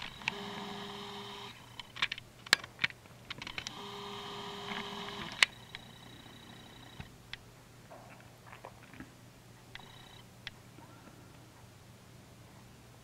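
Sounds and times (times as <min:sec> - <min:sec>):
steady whine: 0:00.0 - 0:02.2, 0:03.2 - 0:07.4.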